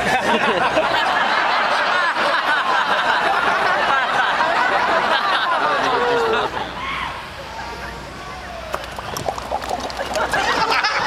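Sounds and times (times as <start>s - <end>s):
huge crowd laughing: 0.0s - 6.9s, 9.8s - 11.0s.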